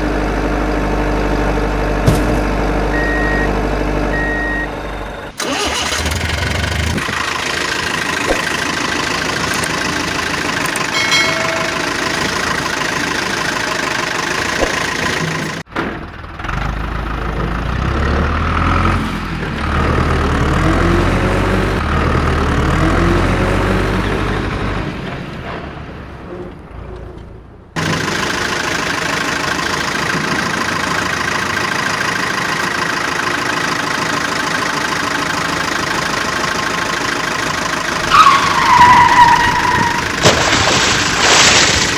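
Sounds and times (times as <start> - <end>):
engine running steadily: 0.0 - 17.9
deeper engine revving: 0.0 - 41.9.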